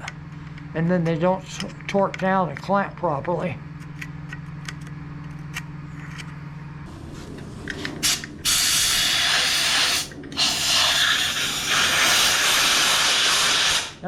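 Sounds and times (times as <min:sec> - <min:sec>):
low steady hum: 0:00.0 - 0:14.0
spray nozzle hissing: 0:08.0 - 0:14.0.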